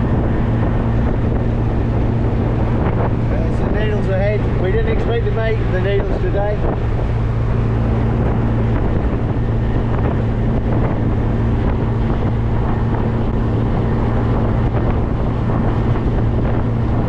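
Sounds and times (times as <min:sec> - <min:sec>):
car engine drone: 0:00.0 - 0:17.0
road noise: 0:00.0 - 0:17.0
wind noise: 0:00.0 - 0:17.0.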